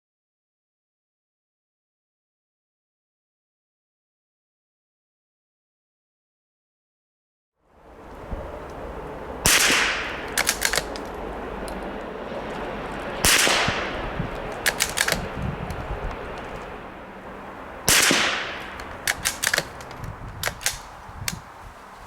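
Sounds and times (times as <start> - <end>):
rifle shots: 9.4 - 11.2, 13.2 - 15.4, 17.8 - 20.9
rifle bolt clicks: 9.5 - 11.9, 13.3 - 16.7, 17.9 - 21.4.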